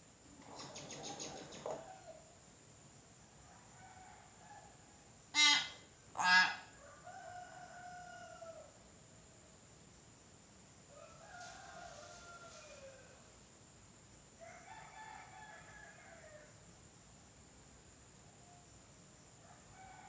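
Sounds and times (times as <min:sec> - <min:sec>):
myna sharp calls: 0:05.4 - 0:06.7
falling crow-like calls: 0:05.4 - 0:08.5.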